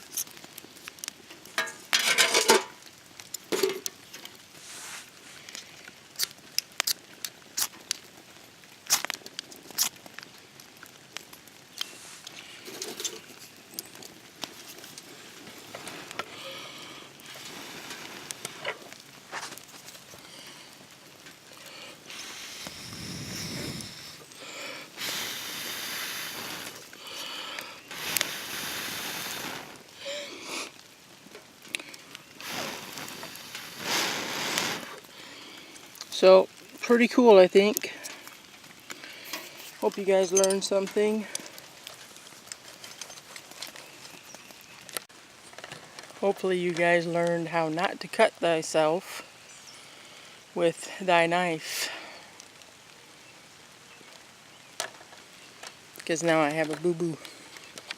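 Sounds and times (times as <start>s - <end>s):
hissing bursts: 21.5s - 30.8s, 31.8s - 35.9s.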